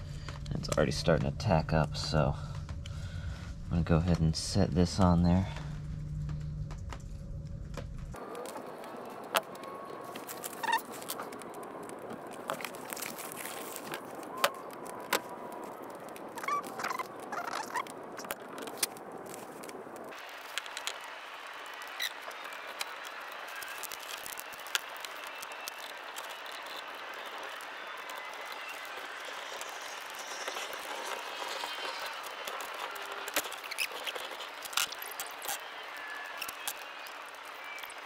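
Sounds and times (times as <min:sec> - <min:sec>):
chirping squeaks: 0:10.5 - 0:10.9, 0:16.4 - 0:17.9, 0:28.1 - 0:38.0.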